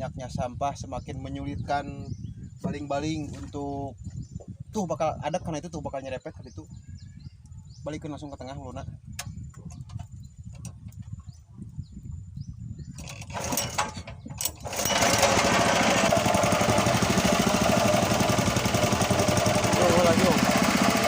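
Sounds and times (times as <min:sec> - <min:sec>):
boat engine running: 0:13.0 - 0:21.0.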